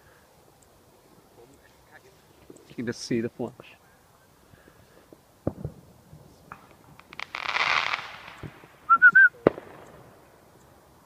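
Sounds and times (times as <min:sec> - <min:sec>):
fireworks hissing crackling burst: 0:04.0 - 0:11.0
fireworks cracking: 0:04.4 - 0:11.0
fireworks whistling chirps: 0:05.4 - 0:10.3.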